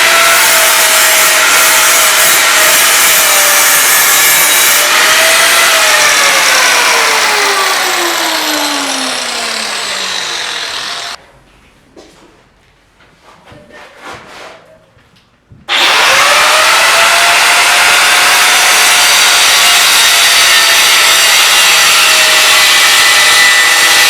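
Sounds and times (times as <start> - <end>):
power tool rasping: 0.0 - 11.2, 15.7 - 24.0.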